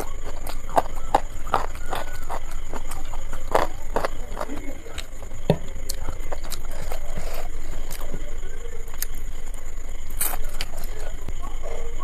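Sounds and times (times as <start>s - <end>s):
chewing and mouth smacking: 0.0s - 5.2s, 5.8s - 8.2s
fingers squishing rice: 0.0s - 5.2s.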